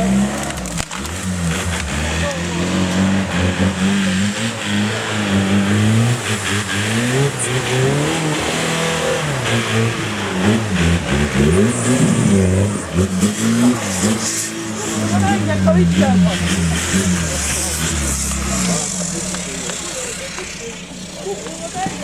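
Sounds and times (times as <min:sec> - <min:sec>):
engine revving: 0:00.0 - 0:22.0.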